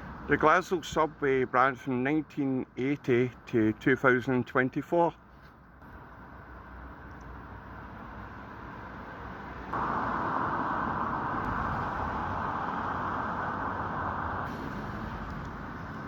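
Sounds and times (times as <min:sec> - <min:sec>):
road vehicle rushing noise: 0:05.8 - 0:16.0.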